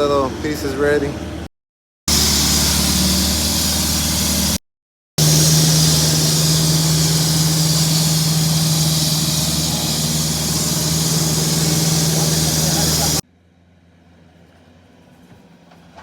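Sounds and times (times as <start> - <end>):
engine humming: 2.1 - 4.6, 5.2 - 14.4
hiss: 2.1 - 4.6, 5.2 - 13.2.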